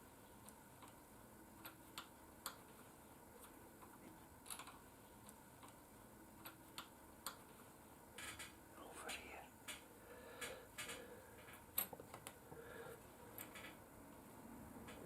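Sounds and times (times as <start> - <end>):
small clicks and ticks: 0.4 - 1.0, 1.6 - 2.8, 3.4 - 5.8, 6.4 - 7.6, 8.2 - 12.4.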